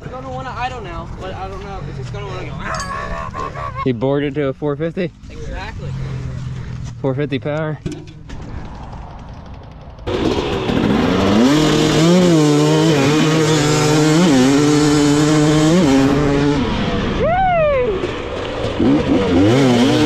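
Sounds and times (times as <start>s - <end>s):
dirt bike engine revving: 8.8s - 17.2s, 18.0s - 20.0s.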